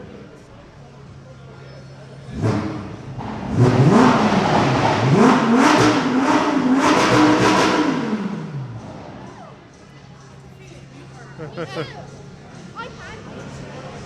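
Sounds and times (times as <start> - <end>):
car engine revving: 2.1 - 9.5.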